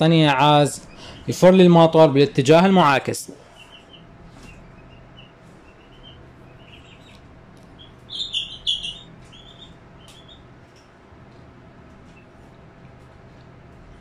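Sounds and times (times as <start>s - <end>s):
small birds chirping: 0.8s - 1.5s, 3.4s - 10.8s.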